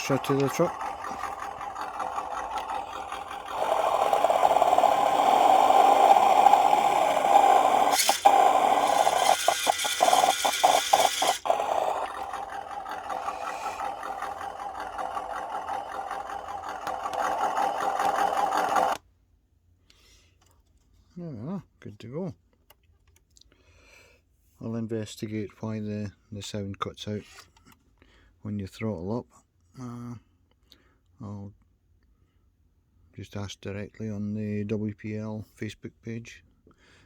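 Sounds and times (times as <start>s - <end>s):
simulated truck engine from speaker: 0.0s - 19.0s.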